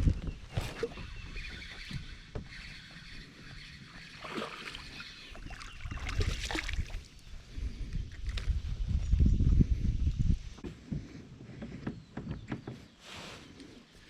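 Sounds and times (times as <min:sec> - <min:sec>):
light water sounds: 0:03.9 - 0:07.3.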